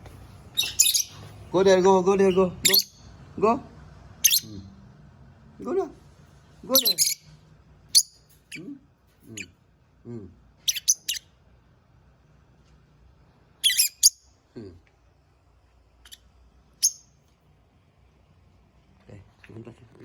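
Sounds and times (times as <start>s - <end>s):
lovebirds chirping: 0.5s - 3.2s, 4.2s - 4.6s, 6.6s - 7.3s, 7.9s - 9.5s, 10.6s - 11.4s, 13.6s - 14.4s, 16.0s - 17.2s.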